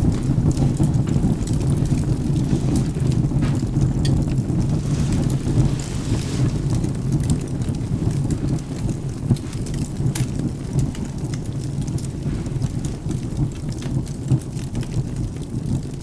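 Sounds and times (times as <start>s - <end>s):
low rumble of thunder: 0.0s - 16.0s
steady rain: 0.0s - 16.0s
wood crackling in fireplace: 0.0s - 16.0s.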